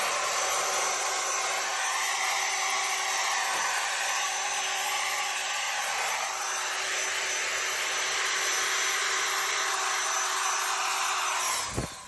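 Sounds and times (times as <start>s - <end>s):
power sander on metal: 0.0s - 12.0s.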